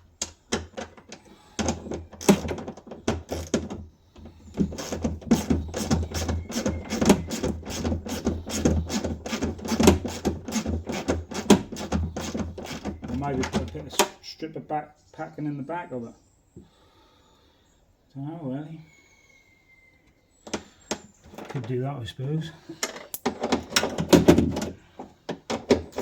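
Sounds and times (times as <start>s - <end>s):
hand ratchet clicking: 4.5s - 13.6s.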